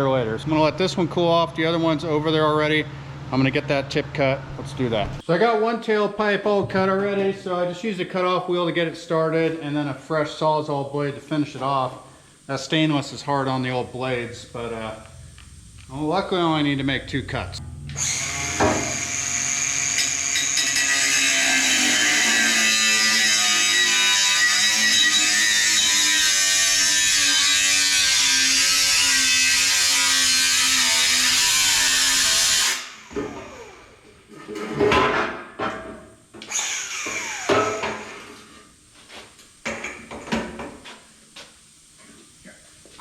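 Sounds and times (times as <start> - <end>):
power tool cutting steel tubing: 17.8 - 33.9, 36.4 - 38.3.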